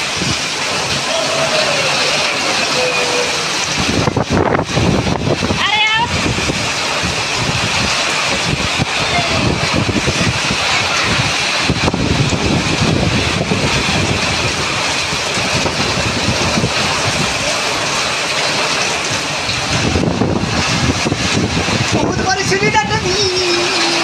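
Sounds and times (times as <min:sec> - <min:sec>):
heavy rain pouring: 0:00.0 - 0:24.0
wind rumbling on microphone: 0:00.0 - 0:24.0.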